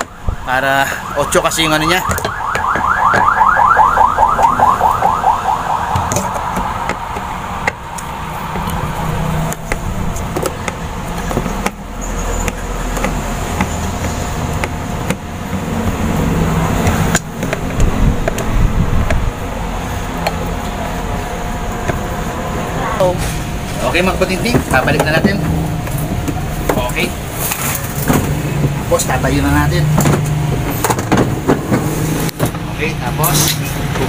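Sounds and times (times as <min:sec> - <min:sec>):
warbling electronic alarm tone: 0:00.0 - 0:09.4
low steady rumble: 0:03.0 - 0:30.9.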